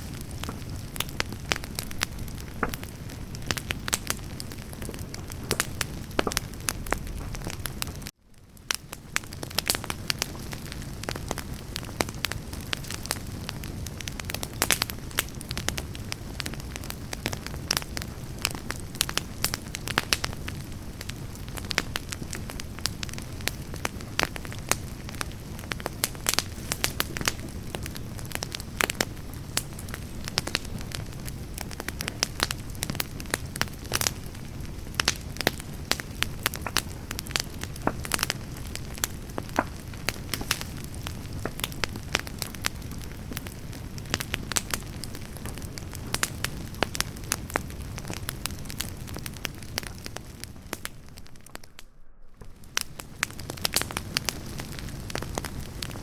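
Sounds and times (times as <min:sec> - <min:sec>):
fire low steady rush: 0:00.0 - 0:16.2, 0:17.8 - 0:56.0
campfire crackling and popping: 0:00.0 - 0:56.0.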